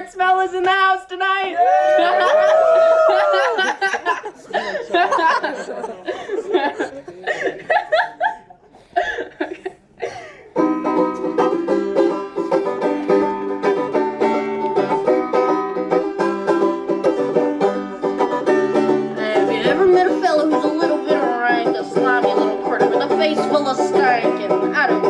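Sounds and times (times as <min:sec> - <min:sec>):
crowd talking and laughing: 0:01.6 - 0:25.0
live band playing country tune: 0:10.6 - 0:25.0.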